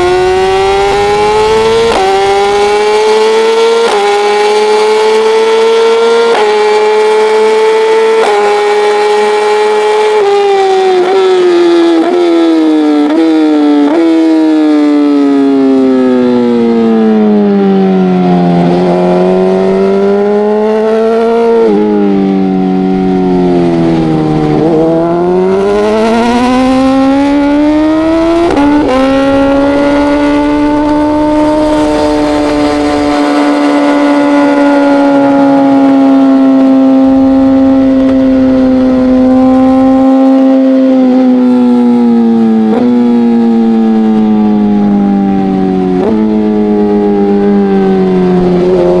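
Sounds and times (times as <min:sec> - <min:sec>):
race motorcycle engine: 0:00.0 - 0:49.0.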